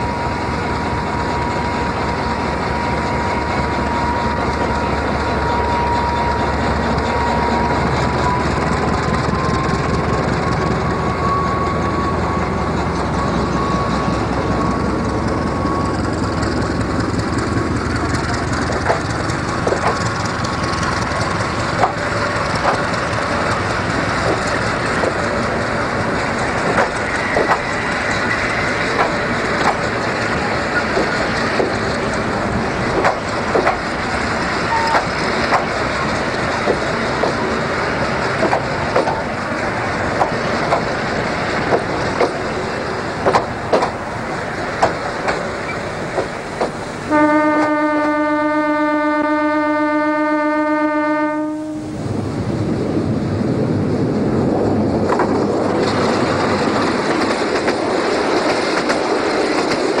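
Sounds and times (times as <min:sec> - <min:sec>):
wheels clacking over rail joints: 0:00.0 - 0:48.1, 0:54.0 - 1:00.0
train running rumble: 0:00.0 - 1:00.0
train horn blast: 0:47.0 - 0:52.0.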